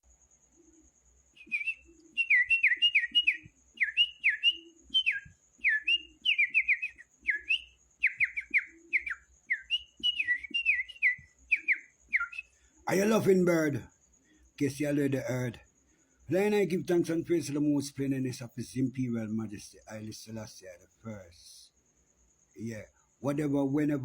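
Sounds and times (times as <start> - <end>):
whistled notes sliding down: 1.4 - 12.5.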